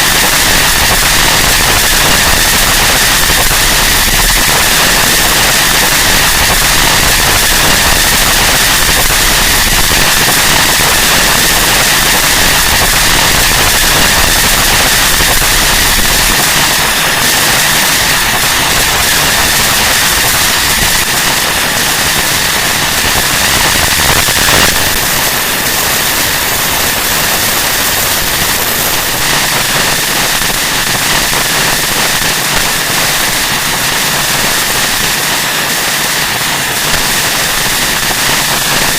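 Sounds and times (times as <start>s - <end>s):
dense wall of static: 0.0s - 38.9s
steady high whine: 0.0s - 38.9s.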